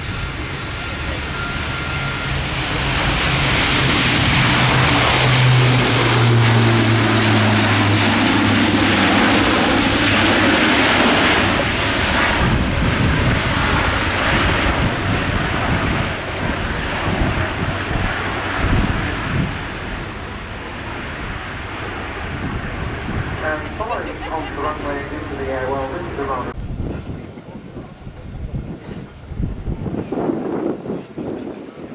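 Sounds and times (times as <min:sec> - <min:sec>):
jet aircraft passing: 0:00.0 - 0:31.9.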